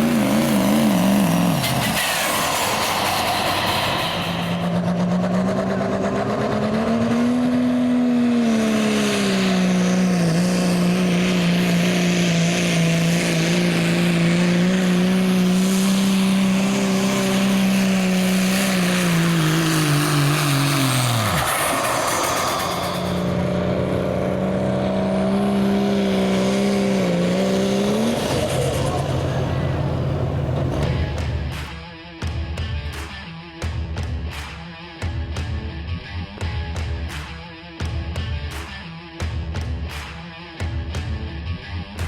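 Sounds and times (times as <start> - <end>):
diesel engine revving: 0.0 - 31.7.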